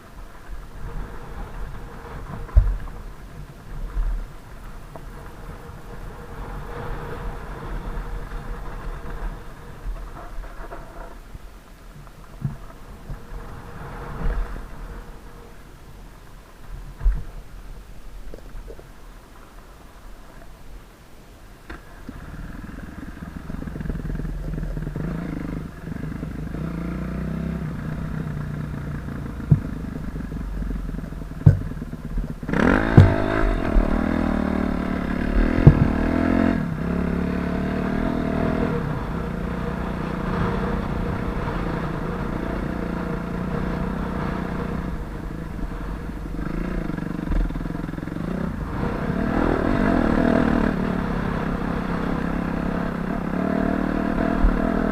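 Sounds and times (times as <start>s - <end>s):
dirt bike engine revving: 22.2s - 54.9s
sharp knocks: 31.4s - 31.8s, 32.8s - 33.4s.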